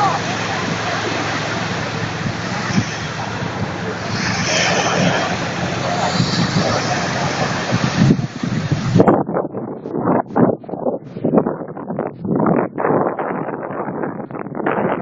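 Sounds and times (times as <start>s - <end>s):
sea waves: 0.0s - 9.1s
steady low hum: 0.0s - 15.0s
wind buffeting the microphone: 0.0s - 15.0s.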